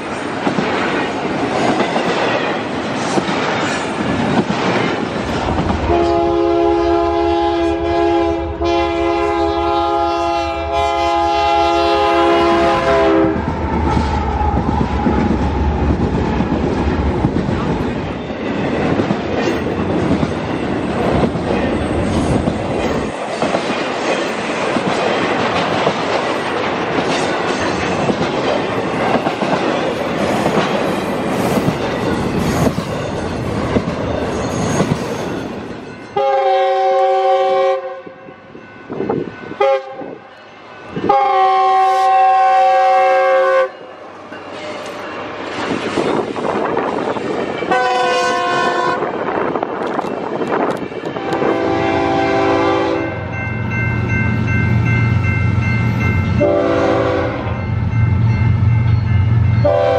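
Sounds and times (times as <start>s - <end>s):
train wheels rumbling on rails: 0.0s - 59.9s
locomotive horn blasts: 5.9s - 13.4s, 36.2s - 38.2s, 39.6s - 40.3s, 41.0s - 43.8s, 47.7s - 49.1s, 51.2s - 53.2s, 56.4s - 57.6s, 59.6s - 59.9s.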